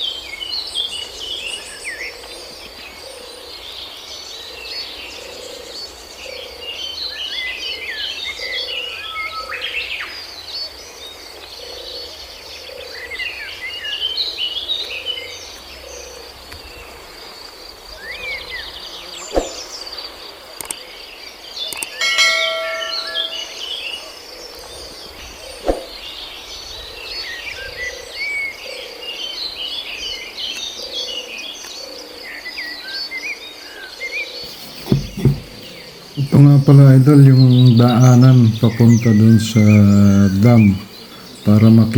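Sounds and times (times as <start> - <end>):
birds chirping: 0.0 - 41.9
high insect trill: 21.7 - 26.7, 34.4 - 41.9
sharp knocks: 22.0 - 23.5, 34.5 - 36.4
low repeating call: 22.0 - 23.7, 34.4 - 41.9.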